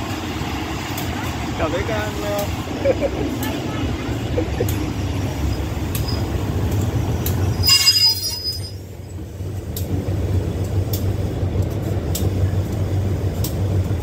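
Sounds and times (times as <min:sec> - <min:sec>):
train carriages rumbling by: 0:00.0 - 0:14.0
wheels clicking over rail joints: 0:00.0 - 0:14.0
steel wheels squealing on rails: 0:03.4 - 0:09.4.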